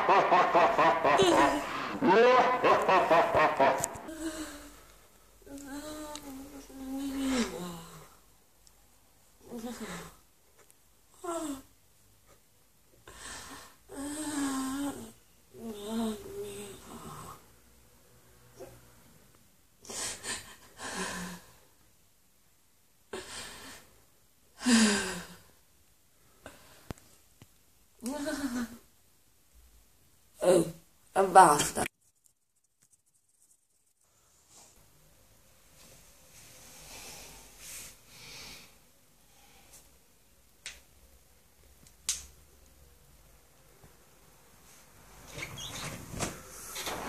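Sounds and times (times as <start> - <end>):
finger snaps: 41.8 - 42.4.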